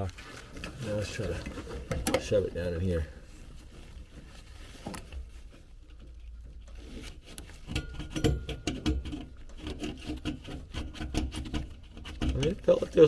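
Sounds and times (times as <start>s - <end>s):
wire scraping and clicking: 4.1s - 13.0s.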